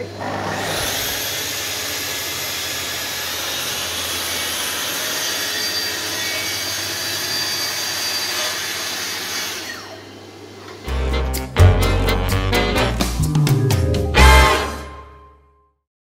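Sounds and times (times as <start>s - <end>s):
track saw cutting wood: 0.0s - 10.2s.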